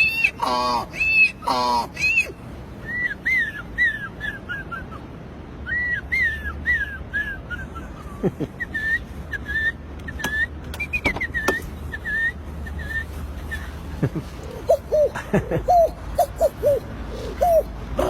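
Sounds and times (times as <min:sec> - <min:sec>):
man whistling birdsong imitation: 0:02.0 - 0:05.0, 0:05.6 - 0:07.9, 0:08.6 - 0:13.7, 0:15.7 - 0:17.7.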